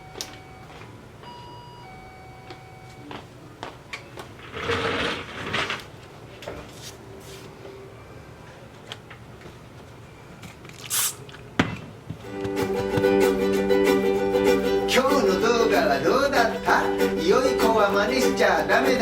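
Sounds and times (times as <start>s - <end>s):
rustling clatter: 4.4s - 7.0s
short hiss: 10.8s - 11.3s.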